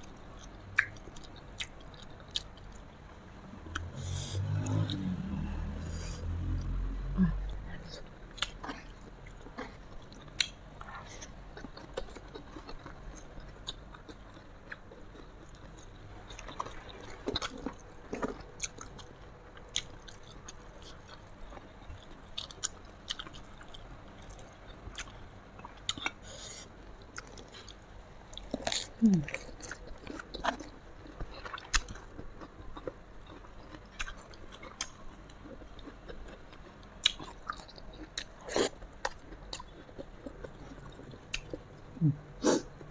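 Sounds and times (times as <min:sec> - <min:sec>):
person chewing and crunching food: 0:00.0 - 0:02.9, 0:03.6 - 0:42.9.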